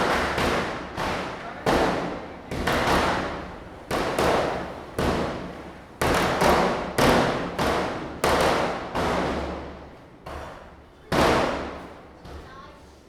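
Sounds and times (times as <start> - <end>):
firecrackers bursting: 0.0 - 9.6.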